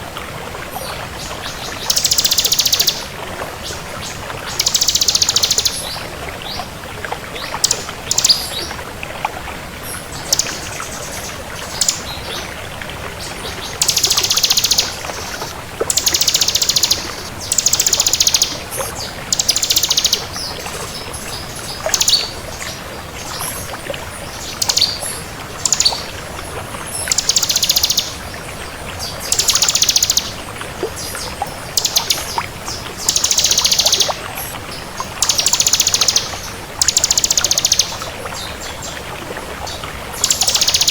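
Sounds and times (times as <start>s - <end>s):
bird singing buzzy trills: 1.5s - 3.1s, 13.4s - 20.3s, 33.0s - 34.2s, 35.2s - 38.5s.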